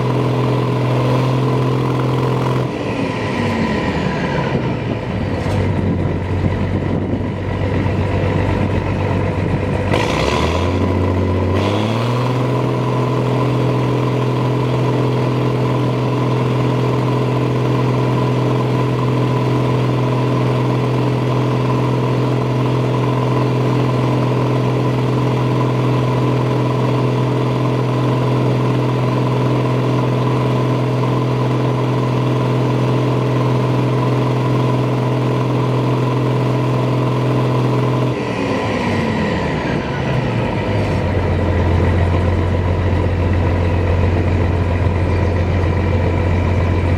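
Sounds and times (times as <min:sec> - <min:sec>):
diesel engine revving: 0:00.0 - 0:46.9.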